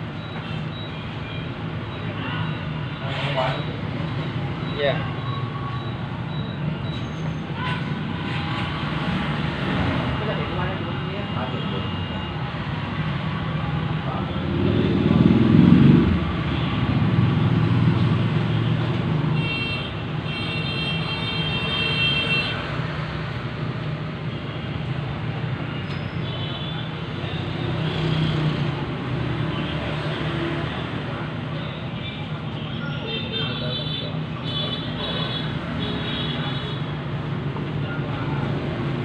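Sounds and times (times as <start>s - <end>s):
traffic rumble: 0.0s - 39.0s
loud vehicle passing: 12.6s - 19.4s, 27.0s - 31.4s.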